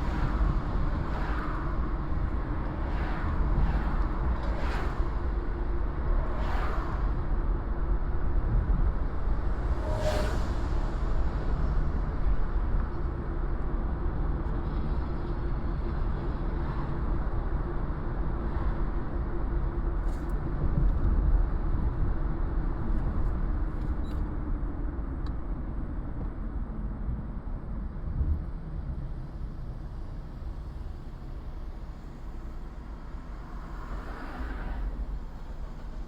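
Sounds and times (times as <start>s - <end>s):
car engine and tyres rumbling: 0.0s - 36.0s.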